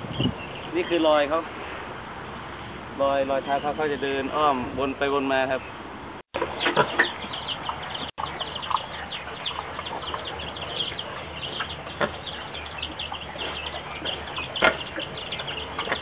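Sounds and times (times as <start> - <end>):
birds chirping: 0.0 - 1.4, 3.1 - 16.0
lower bird calls: 6.4 - 16.0.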